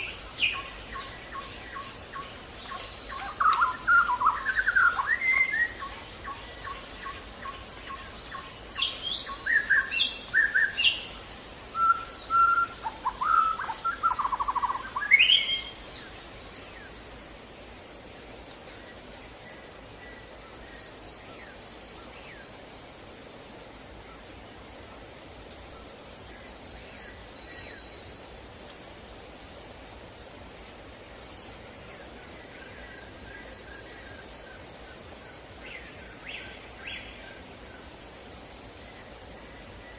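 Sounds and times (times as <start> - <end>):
birds chirping and calling: 11.8 - 15.8.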